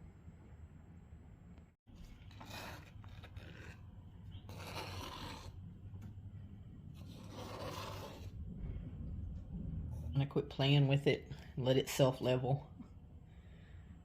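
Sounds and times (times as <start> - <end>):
resin scraping across countertop: 2.0 - 5.6, 7.0 - 8.4.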